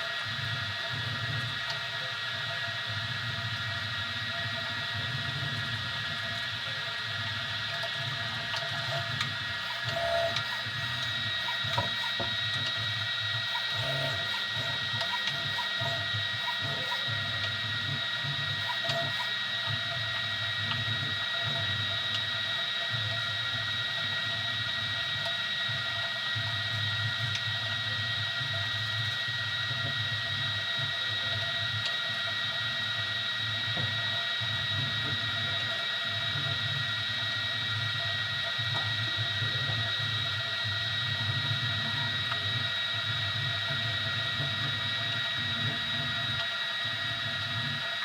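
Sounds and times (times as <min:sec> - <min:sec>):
three d printer running: 0:07.3 - 0:32.4.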